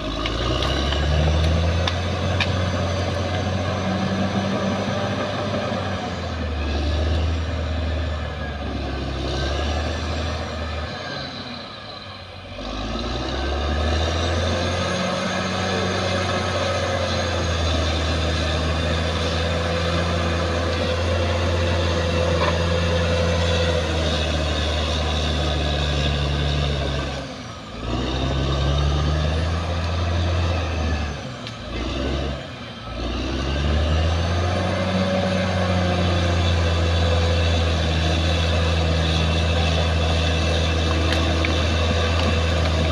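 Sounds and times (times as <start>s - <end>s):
tracks and blade clattering: 0.0s - 3.7s, 17.5s - 27.1s
bulldozer diesel engine under load: 0.0s - 42.9s.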